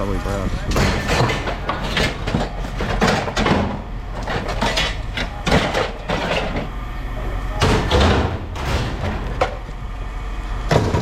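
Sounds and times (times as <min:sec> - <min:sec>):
scrap metal clanking: 0:00.7 - 0:06.7
hard metallic hits: 0:07.6 - 0:09.6.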